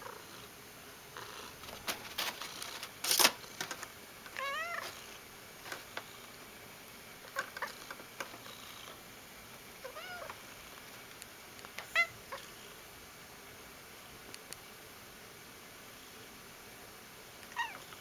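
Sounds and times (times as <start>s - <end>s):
cat chirping and calling: 4.4s - 5.0s, 9.8s - 10.4s, 11.9s - 12.5s, 17.6s - 18.0s.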